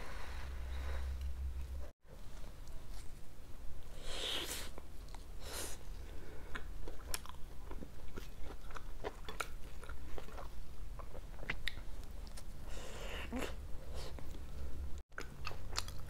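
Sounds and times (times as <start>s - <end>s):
chewing pizza with wet clicks: 15.1s - 16.0s.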